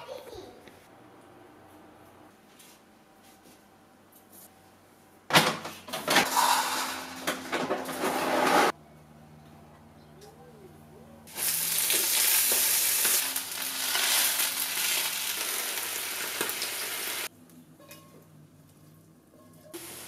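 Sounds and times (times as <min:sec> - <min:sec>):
food sizzling in hot oil: 0:11.3 - 0:17.3.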